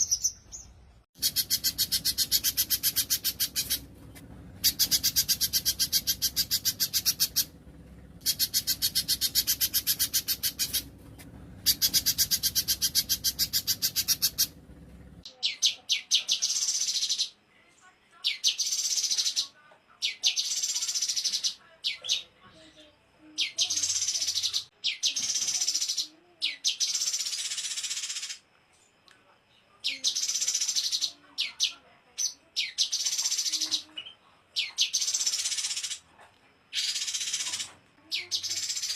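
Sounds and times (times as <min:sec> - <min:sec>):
high-pitched bird song phrases: 0:00.0 - 0:03.9, 0:04.6 - 0:07.5, 0:08.2 - 0:14.6, 0:15.3 - 0:36.0, 0:36.7 - 0:38.9
buzzy bird trills: 0:00.0 - 0:04.0, 0:04.6 - 0:07.6, 0:08.2 - 0:14.8.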